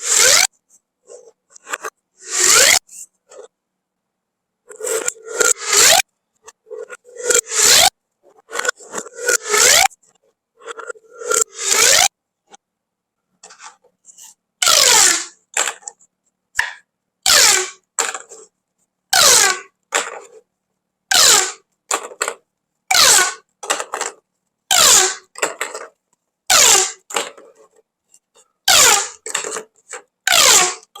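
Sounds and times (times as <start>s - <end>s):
pop tube zipping ratchet: 0.0s - 0.5s, 1.7s - 2.8s, 4.8s - 6.0s, 7.2s - 7.9s, 8.6s - 10.0s, 11.2s - 12.1s, 14.6s - 15.8s, 17.3s - 18.3s, 19.2s - 20.2s, 21.1s - 22.1s, 22.9s - 24.0s, 24.7s - 25.8s, 26.5s - 27.4s, 28.7s - 30.9s.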